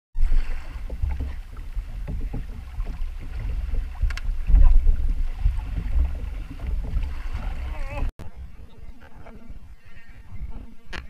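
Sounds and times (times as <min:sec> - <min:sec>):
water splashing against boat: 0:00.2 - 0:11.0
wind buffeting microphone: 0:00.2 - 0:11.0.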